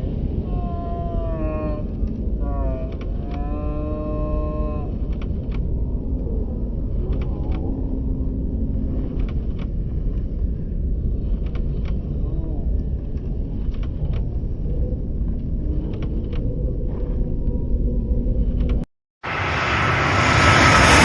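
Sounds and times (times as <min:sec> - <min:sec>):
low steady rumble: 0:00.0 - 0:21.0
high voice calling out: 0:00.4 - 0:04.9.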